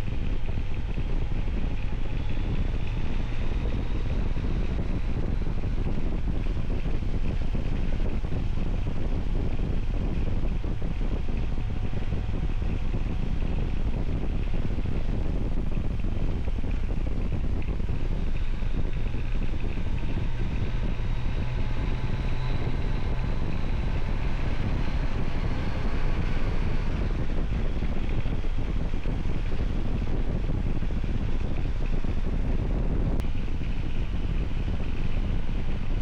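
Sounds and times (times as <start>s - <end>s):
motorcycle engine drone: 0.0s - 36.0s
wind buffeting microphone: 0.0s - 36.0s.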